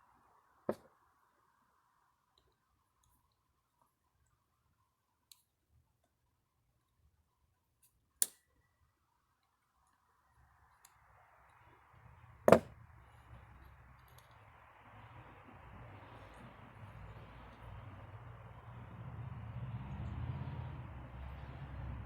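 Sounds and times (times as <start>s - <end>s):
knock of metal tools: 12.5s - 12.7s.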